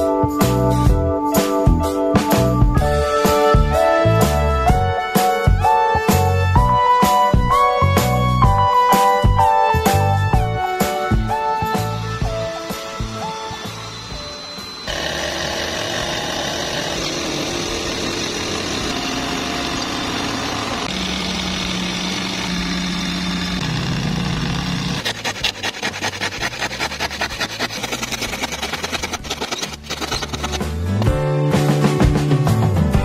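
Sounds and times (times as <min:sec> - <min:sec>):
drill powered saw cutting plywood: 0:10.9 - 0:31.1
hand saw cutting plywood: 0:14.9 - 0:31.1.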